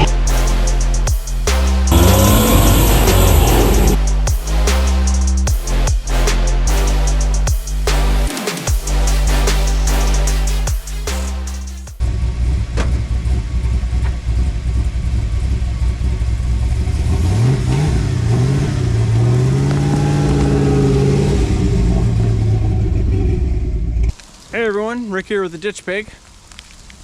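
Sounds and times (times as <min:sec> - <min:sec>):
truck engine running: 0:01.8 - 0:04.0, 0:12.0 - 0:24.1.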